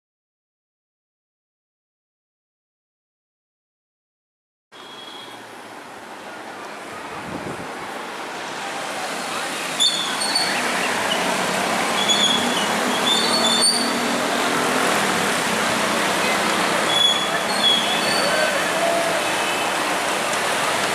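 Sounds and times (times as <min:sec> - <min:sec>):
traffic on wet road hissing: 0:04.8 - 0:20.9.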